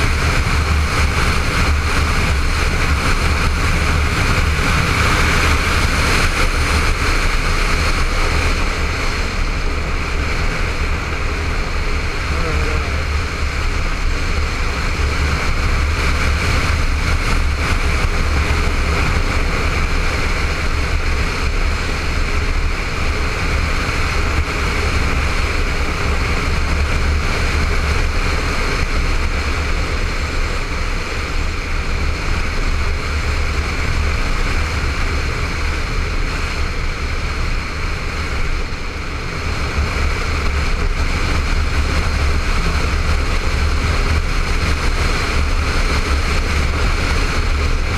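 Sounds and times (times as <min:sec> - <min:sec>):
motorcycle engine running: 0:00.0 - 0:47.9
wind and road noise: 0:00.0 - 0:47.9.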